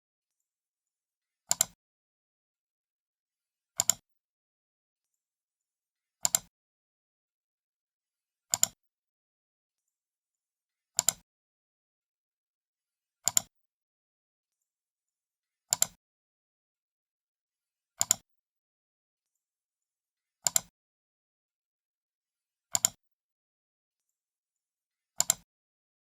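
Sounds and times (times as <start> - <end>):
computer mouse clicks: 1.5 - 1.8, 3.8 - 4.0, 6.2 - 6.5, 8.5 - 8.8, 11.0 - 11.2, 13.2 - 13.5, 15.7 - 16.0, 18.0 - 18.2, 20.4 - 20.7, 22.7 - 23.0, 25.2 - 25.5.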